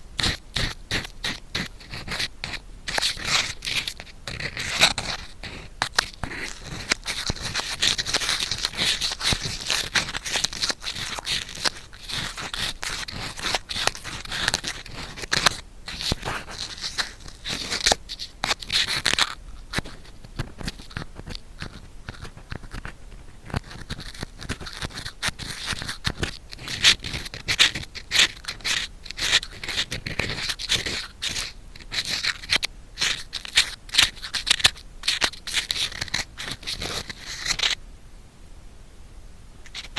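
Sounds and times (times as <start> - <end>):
ear pick scratching microphone: 0.0 - 37.8, 39.6 - 39.9.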